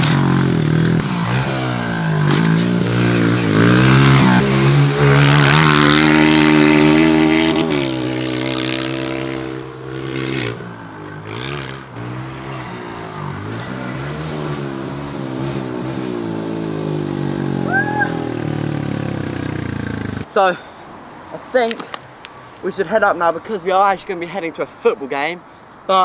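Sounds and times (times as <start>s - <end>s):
pit bike engine revving: 0.0s - 20.3s.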